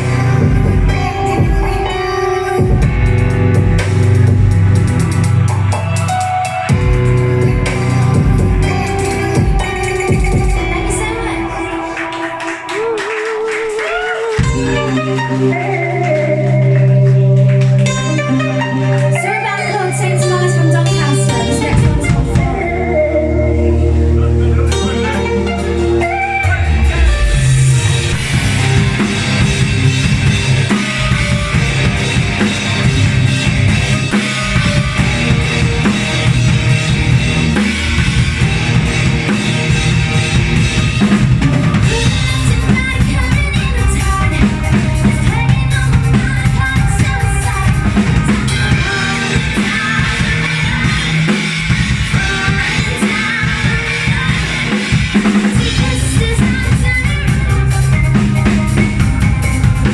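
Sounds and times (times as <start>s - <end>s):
live band playing: 0.0s - 59.9s.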